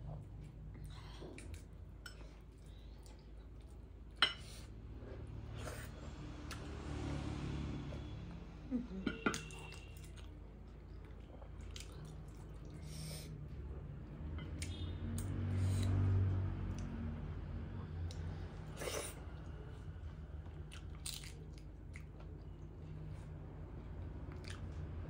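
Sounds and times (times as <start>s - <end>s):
chewing and wet smacking: 0.0s - 4.2s, 9.4s - 25.0s.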